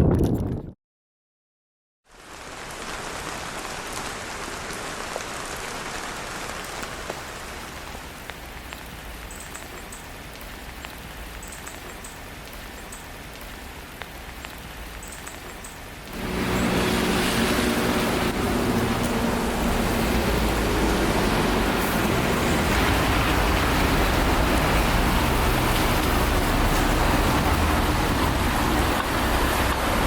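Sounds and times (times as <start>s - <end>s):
rain falling: 2.1s - 30.0s.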